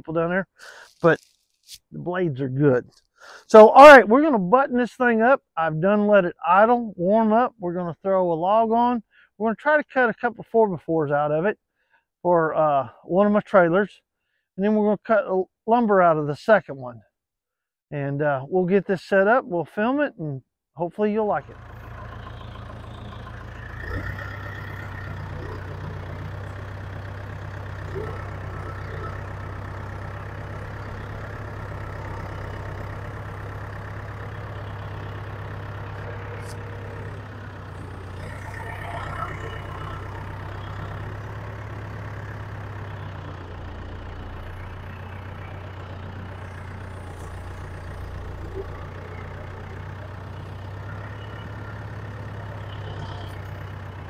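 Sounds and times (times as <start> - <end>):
engine idling: 21.4 - 54.0.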